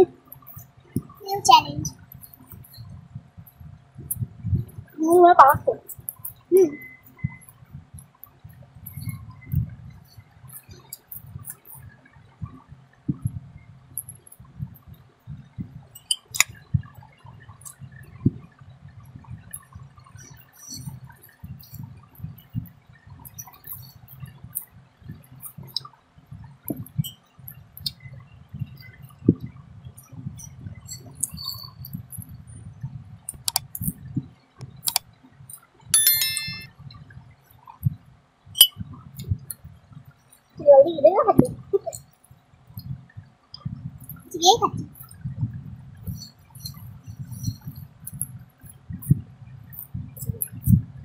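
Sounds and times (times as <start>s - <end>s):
bell-chime sound effect: 36.0s - 36.7s
sharp clink: 36.0s - 36.7s, 38.6s - 38.8s.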